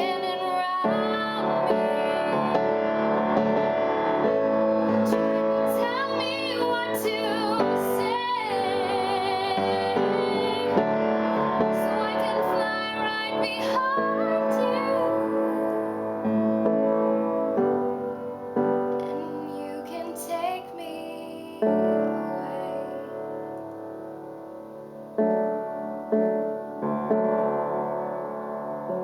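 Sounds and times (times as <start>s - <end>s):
woman singing a slow ballad: 0.0s - 3.2s, 4.3s - 16.3s, 19.0s - 23.6s
piano accompaniment: 0.0s - 29.0s.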